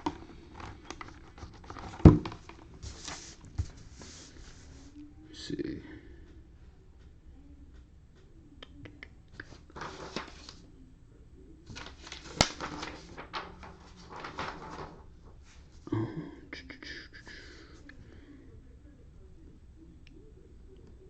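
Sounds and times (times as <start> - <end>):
rustling and scraping on desk: 0.0 - 5.0, 11.7 - 15.8.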